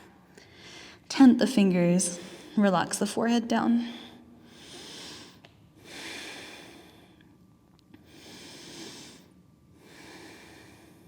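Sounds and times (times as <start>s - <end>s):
person breathing slowly: 3.8s - 7.3s, 8.0s - 11.0s.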